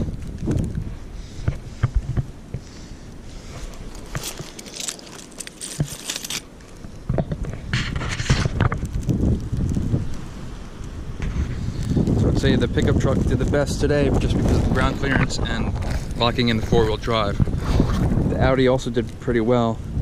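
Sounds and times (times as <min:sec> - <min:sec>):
wind on microphone: 0:00.0 - 0:04.9, 0:05.6 - 0:20.0
footsteps crunching in snow: 0:01.6 - 0:06.8, 0:13.9 - 0:18.1.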